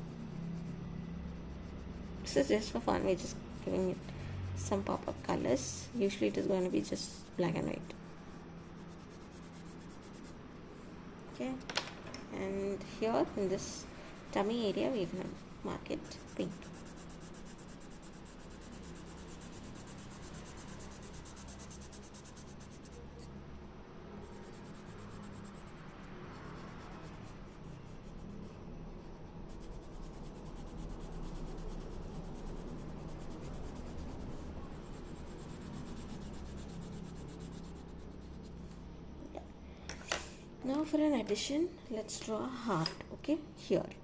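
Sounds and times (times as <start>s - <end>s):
pencil scratching on paper: 0.0s - 10.4s, 13.0s - 23.3s, 24.2s - 28.5s, 29.1s - 38.6s.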